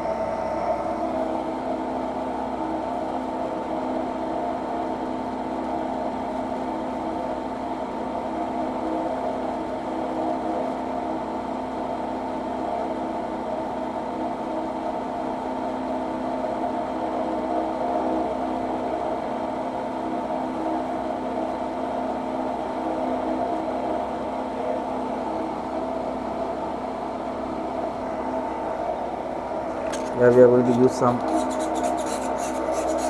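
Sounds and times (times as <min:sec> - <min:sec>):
milling machine whirring: 0:29.2 - 0:33.0.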